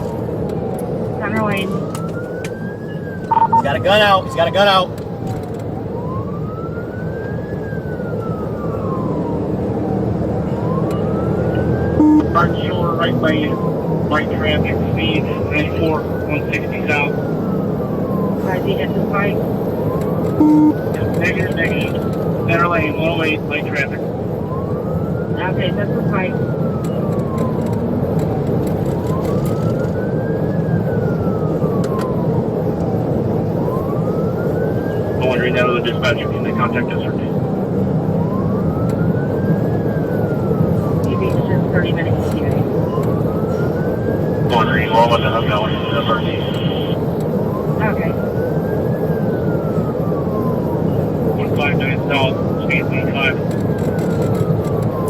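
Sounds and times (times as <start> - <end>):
car driving at high speed: 0.0 - 55.0
police siren wailing: 0.0 - 55.0
road and engine noise: 0.0 - 55.0.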